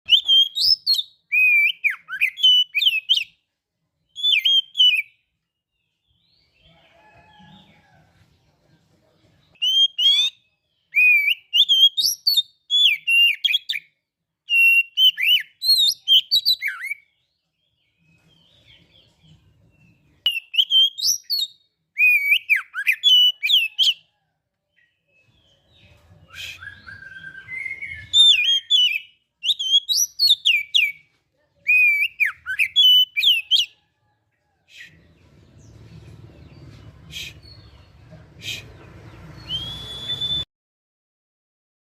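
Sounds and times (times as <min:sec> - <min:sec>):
bird singing whistled phrases: 0:00.1 - 0:03.3, 0:04.1 - 0:05.2, 0:09.6 - 0:13.9, 0:14.5 - 0:17.0, 0:20.3 - 0:24.0, 0:26.3 - 0:31.0, 0:31.7 - 0:33.7, 0:39.4 - 0:40.5.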